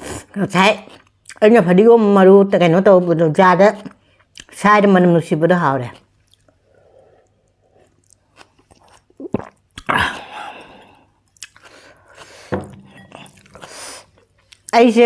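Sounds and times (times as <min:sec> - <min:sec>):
person chewing crunchy food: 0:06.0 - 0:14.7.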